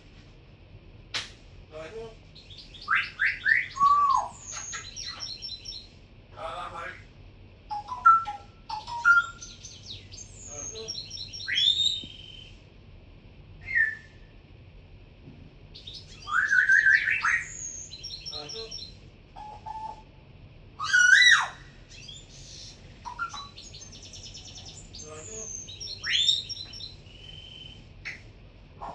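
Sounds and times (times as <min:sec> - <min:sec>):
cockatiel chirping: 0:02.4 - 0:05.8, 0:07.7 - 0:12.5, 0:15.8 - 0:20.0, 0:20.8 - 0:28.2
cockatiel whistled calls: 0:02.4 - 0:05.8, 0:07.7 - 0:12.6, 0:13.6 - 0:14.2, 0:15.8 - 0:20.0, 0:20.8 - 0:28.2.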